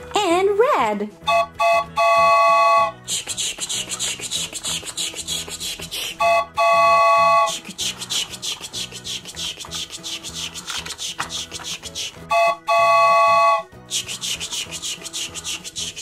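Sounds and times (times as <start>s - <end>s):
toy train horn tooting: 1.2s - 3.0s, 6.2s - 7.6s, 12.3s - 13.7s
toy train chugging rattle: 7.5s - 12.1s.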